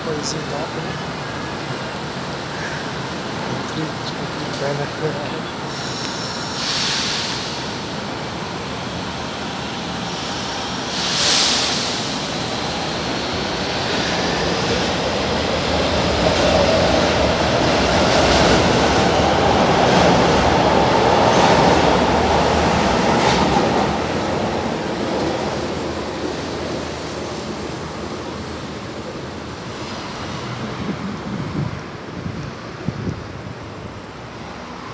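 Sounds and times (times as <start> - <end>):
metro train rumble: 0.0 - 34.9
short hiss: 5.7 - 7.8, 10.1 - 12.4.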